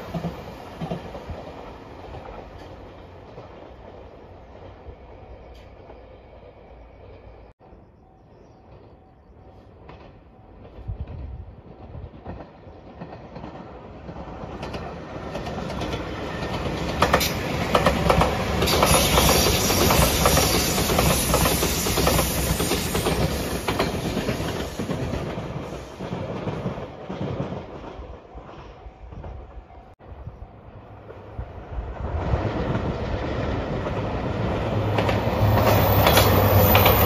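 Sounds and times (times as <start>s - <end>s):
train wheels clattering over rail joints: 9.8s - 28.1s, 32.6s - 37.0s.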